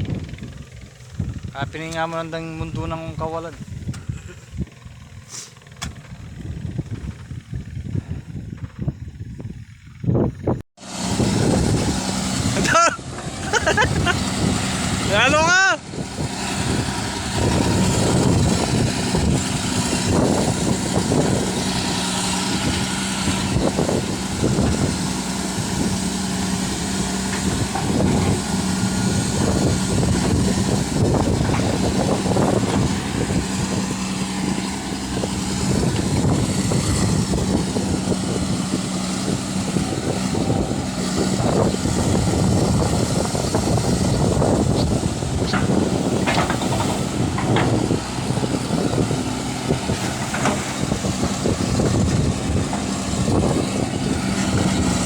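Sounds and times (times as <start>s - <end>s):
excavator diesel engine running: 0.0s - 55.0s
knocks and clatter: 42.7s - 53.6s.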